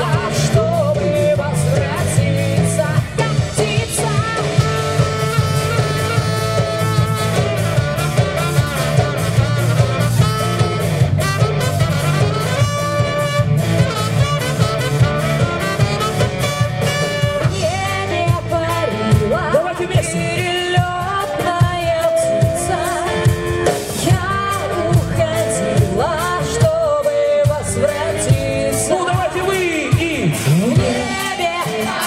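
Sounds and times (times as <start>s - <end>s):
person singing: 0.0s - 7.7s, 17.0s - 32.0s
band playing pop music: 0.0s - 32.0s.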